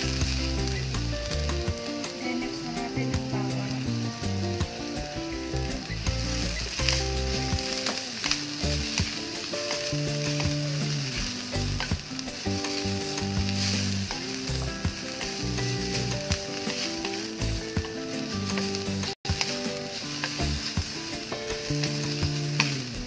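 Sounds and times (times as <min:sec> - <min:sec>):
onions sizzling in oil: 0:00.0 - 0:23.0
spatula scraping a pan: 0:04.9 - 0:22.9.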